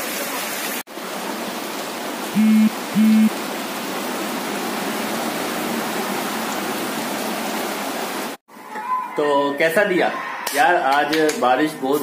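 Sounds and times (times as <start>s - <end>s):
heavy rain pouring: 0.0s - 8.4s
car horn honks: 2.4s - 3.3s.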